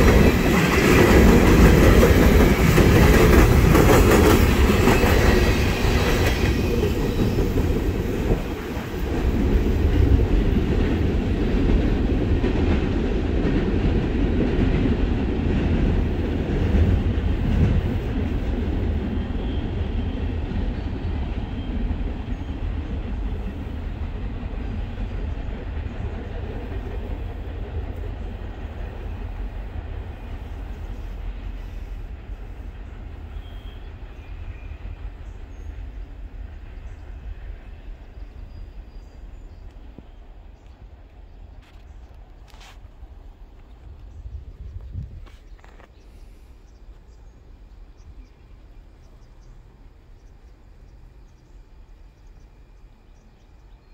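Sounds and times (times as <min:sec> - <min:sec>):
freight train cars rumbling: 0:00.0 - 0:53.9.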